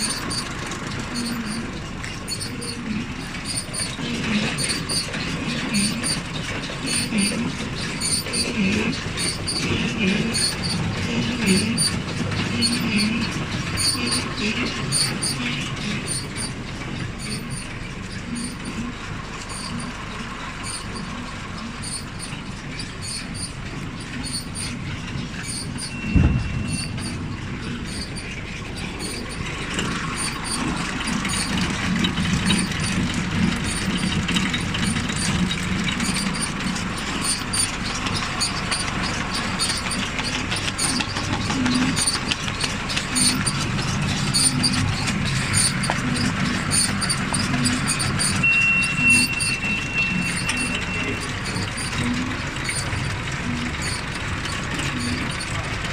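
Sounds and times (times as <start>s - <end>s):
baler mechanism clattering: 0.0s - 55.9s
brief high squeal: 25.4s - 28.4s, 46.8s - 52.9s.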